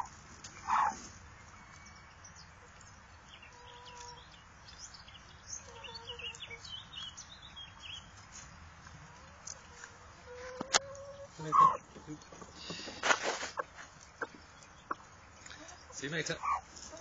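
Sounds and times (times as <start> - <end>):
duckling peeping: 0.0 - 1.0, 3.4 - 8.2, 9.1 - 17.0.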